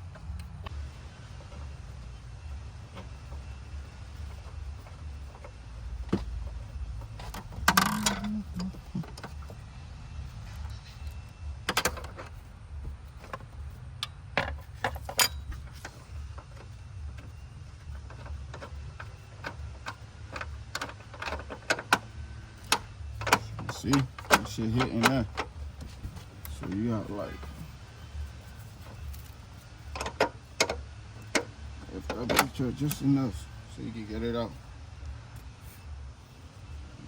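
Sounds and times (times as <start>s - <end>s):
metal tools clinking and knocking: 7.2s - 9.6s, 14.1s - 16.0s.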